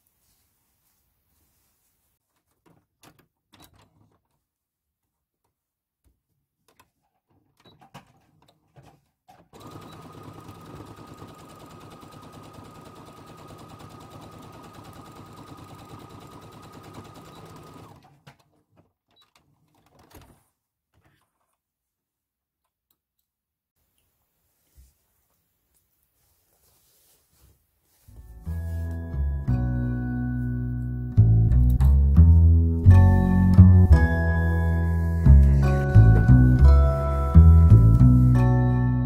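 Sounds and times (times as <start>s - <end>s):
fabric rustling: 0.0s - 2.5s, 23.8s - 29.1s
sewing machine running: 9.6s - 18.0s.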